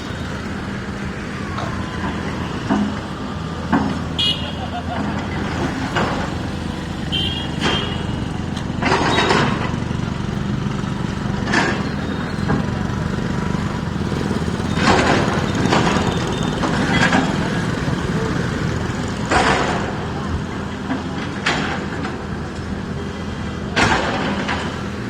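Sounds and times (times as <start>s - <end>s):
diesel earthmoving machine running: 0.0s - 25.0s.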